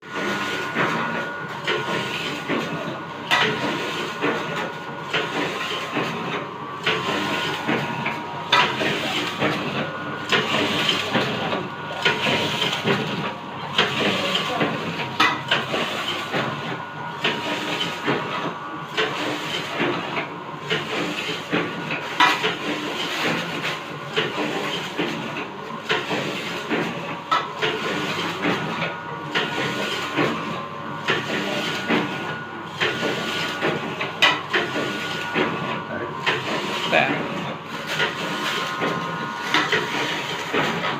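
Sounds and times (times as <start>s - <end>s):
sharp machine clack: 0.1s - 25.2s
machine clatter and hissing: 0.1s - 40.9s.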